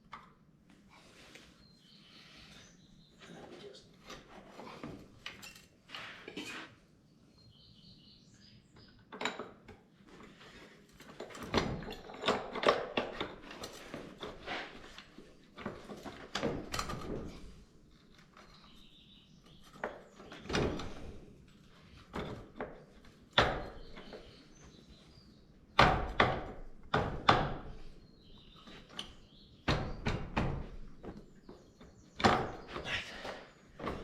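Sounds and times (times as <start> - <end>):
metal tools clanking: 5.2 - 6.5.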